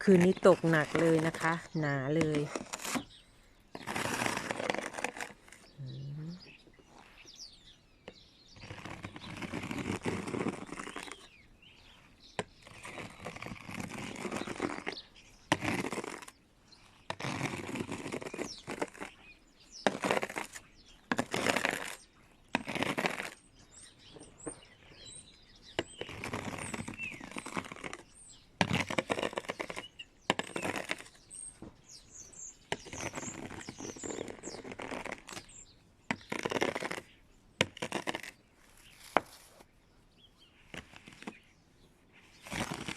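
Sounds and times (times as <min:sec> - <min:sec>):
brush sweeping snow off car: 0:03.8 - 0:05.4
faint high bird chirps: 0:05.6 - 0:09.9, 0:23.4 - 0:28.5, 0:29.6 - 0:36.4.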